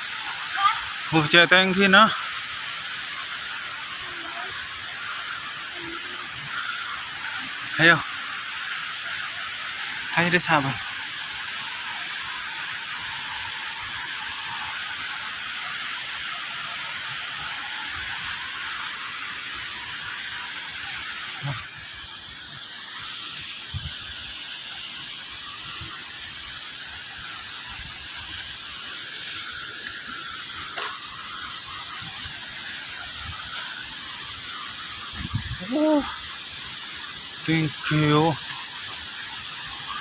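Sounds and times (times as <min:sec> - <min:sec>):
flowing water rushing: 0:00.0 - 0:40.0.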